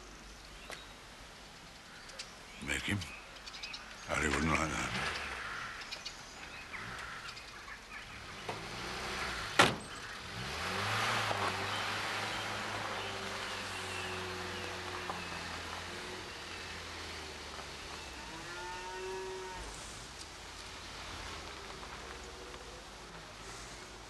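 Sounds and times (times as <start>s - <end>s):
car engine starting and running: 7.6s - 18.2s
car door slamming: 9.5s - 10.0s.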